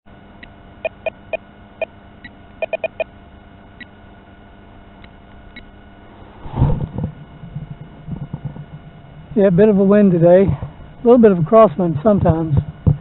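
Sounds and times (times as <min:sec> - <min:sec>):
faint steady hum: 0:00.1 - 0:13.0
short electronic beeps: 0:00.8 - 0:03.1.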